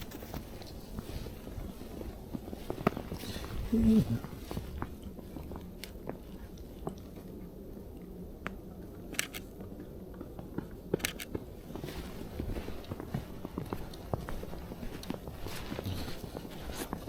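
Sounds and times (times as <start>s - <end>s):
footsteps crunching in snow: 0.0s - 5.8s, 11.3s - 17.0s.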